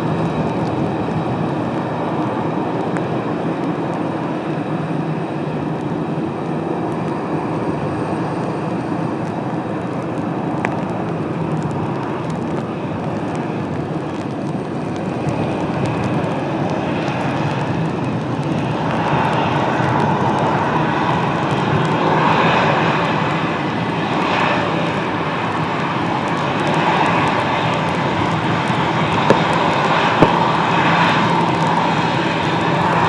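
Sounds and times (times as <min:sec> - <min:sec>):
jet engines rushing: 0:00.0 - 0:33.0.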